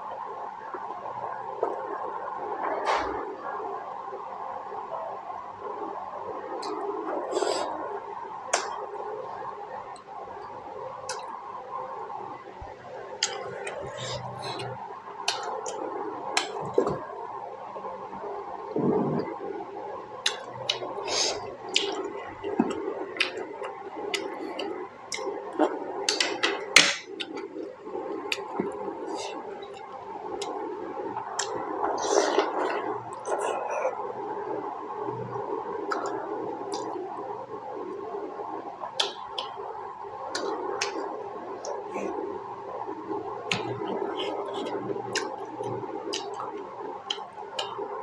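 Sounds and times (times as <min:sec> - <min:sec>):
steady background hum: 0:00.0 - 0:48.0
wet chewing and lip-smacking: 0:13.2 - 0:15.8, 0:21.6 - 0:30.6, 0:43.5 - 0:47.8.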